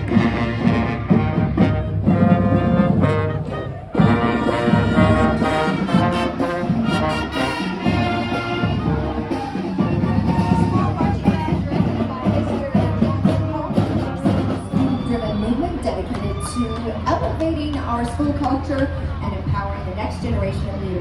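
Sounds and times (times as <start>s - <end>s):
brass band playing: 0.0s - 15.9s.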